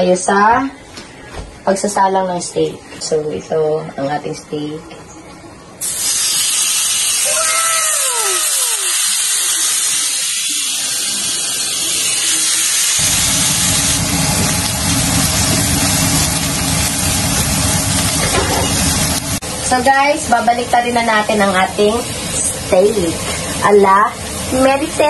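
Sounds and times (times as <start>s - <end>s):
steak sizzling in a pan: 5.8s - 25.0s.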